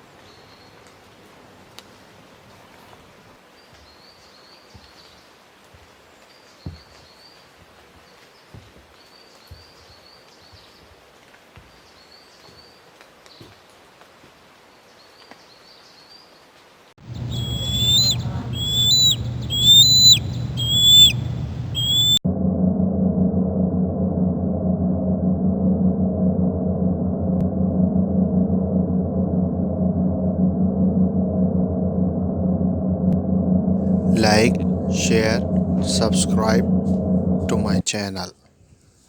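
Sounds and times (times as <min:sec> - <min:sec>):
low hum: 0:17.0 - 0:37.9
short high bird chirps: 0:17.1 - 0:22.2
whistled bird calls: 0:17.1 - 0:22.2, 0:34.0 - 0:36.7.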